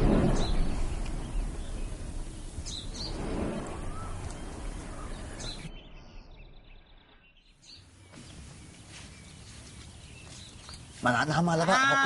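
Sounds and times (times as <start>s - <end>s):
outdoor background noise: 0.0s - 12.0s
short bird chirps: 2.6s - 10.9s.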